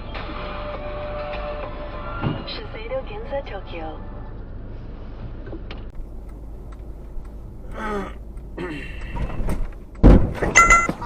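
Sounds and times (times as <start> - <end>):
car rumbling: 2.0 - 11.0
loud thump: 9.3 - 10.6.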